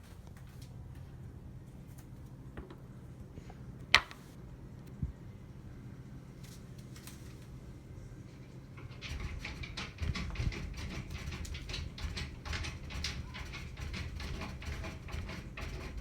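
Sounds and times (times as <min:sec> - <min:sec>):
rapid clicking and scratching: 0:08.8 - 0:16.0.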